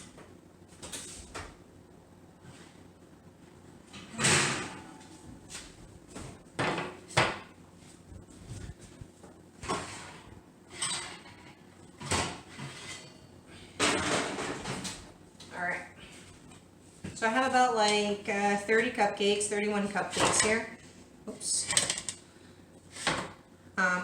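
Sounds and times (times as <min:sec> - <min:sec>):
kitchen items knocking and clattering: 0:06.6 - 0:07.5, 0:09.6 - 0:13.1, 0:13.8 - 0:15.1, 0:20.1 - 0:20.7, 0:21.6 - 0:22.2.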